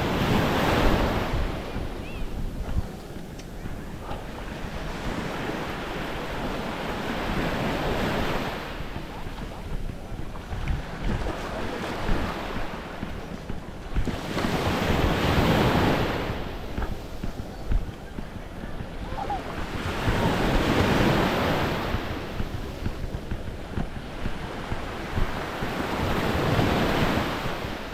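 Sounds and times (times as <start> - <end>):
small waves washing up: 0.0 - 27.9
wind rumbling on microphone: 0.0 - 27.9.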